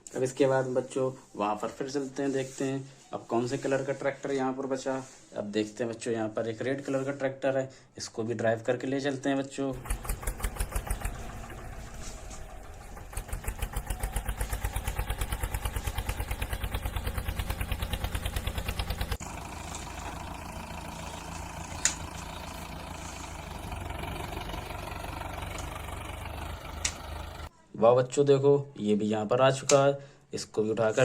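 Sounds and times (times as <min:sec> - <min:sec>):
toy tractor engine chugging: 0:09.8 - 0:27.5.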